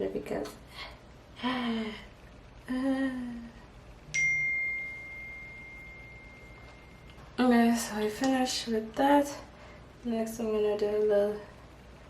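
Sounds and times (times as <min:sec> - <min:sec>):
high bell-like ding: 0:04.1 - 0:07.2.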